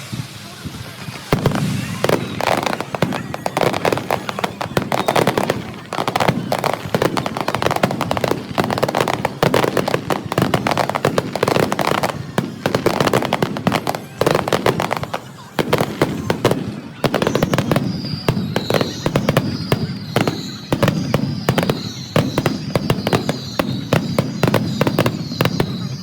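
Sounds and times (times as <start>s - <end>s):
fireworks cracking and banging: 0.0s - 26.0s.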